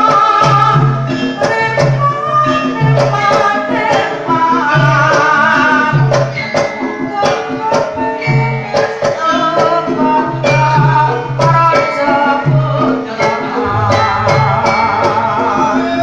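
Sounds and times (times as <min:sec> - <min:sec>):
person singing: 0:00.0 - 0:06.3, 0:07.1 - 0:16.0
ringing pitched percussion: 0:13.4 - 0:16.0
deep hand-drum strokes: 0:13.6 - 0:16.0.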